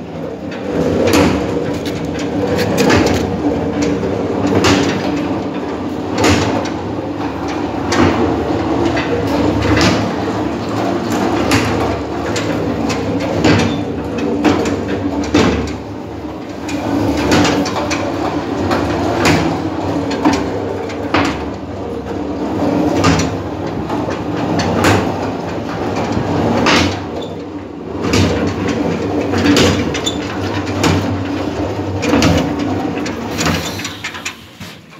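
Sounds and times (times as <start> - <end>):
irregular knocks and clanks: 0.5 - 5.3.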